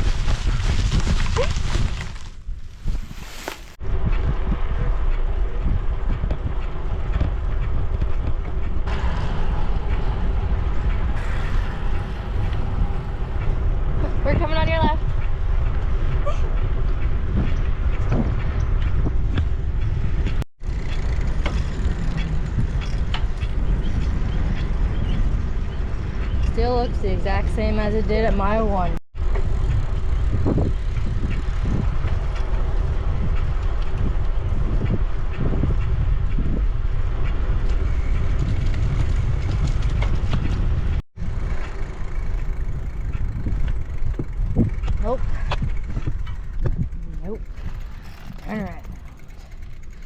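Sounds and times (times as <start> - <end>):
bicycle rolling on pavement: 0.0 - 50.0
wind buffeting microphone: 0.0 - 50.0.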